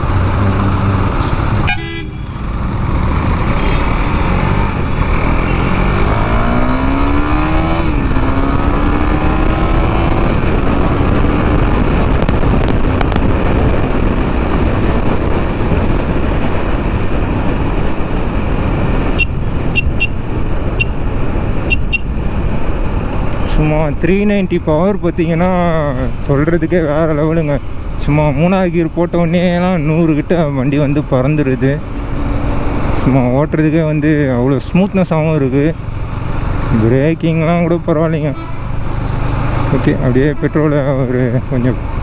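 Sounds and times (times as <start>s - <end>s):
motorcycle engine accelerating: 0.0s - 24.1s, 29.4s - 42.0s
wind and road noise: 0.0s - 42.0s
car horn toots: 1.6s - 2.4s, 19.1s - 21.0s, 21.6s - 22.2s, 38.3s - 38.8s.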